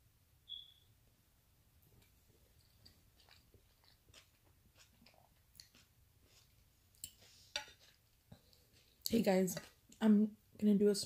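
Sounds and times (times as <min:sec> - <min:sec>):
mouth chewing: 0:02.0 - 0:10.0.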